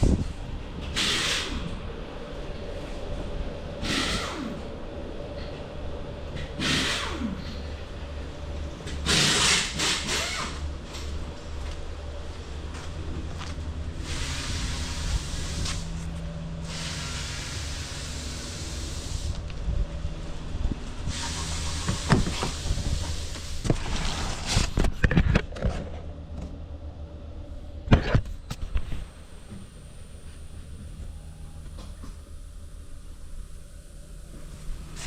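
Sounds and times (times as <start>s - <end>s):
engine idling: 0.0s - 35.0s
hiss: 1.0s - 1.7s, 3.8s - 4.5s, 6.6s - 7.2s, 9.1s - 10.4s, 14.0s - 15.9s, 16.6s - 19.4s, 21.1s - 23.6s.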